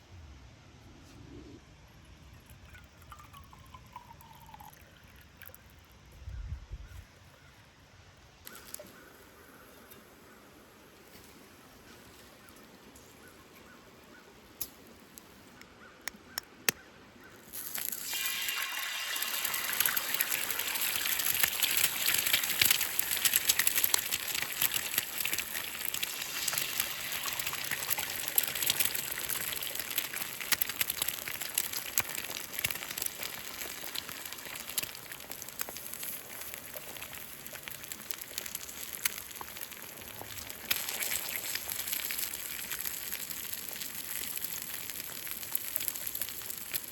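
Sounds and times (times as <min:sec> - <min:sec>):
food sizzling in a skillet: 0:17.5 - 0:46.9.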